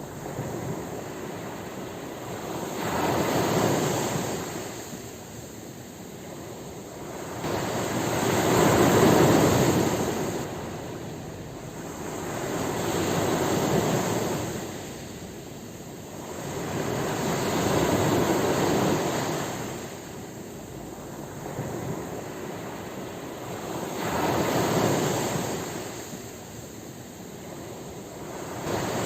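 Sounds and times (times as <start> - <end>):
ocean waves breaking on shore: 0.0 - 29.0.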